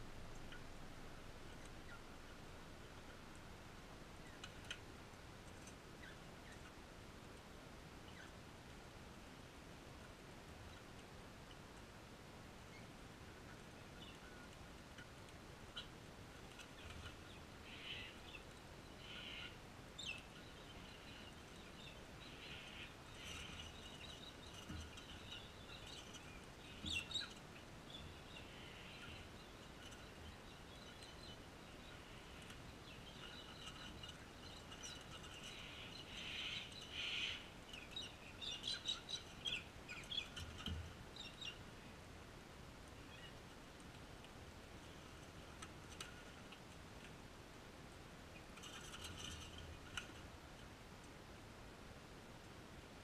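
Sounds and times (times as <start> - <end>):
birds chirping and calling: 13.5 - 41.7.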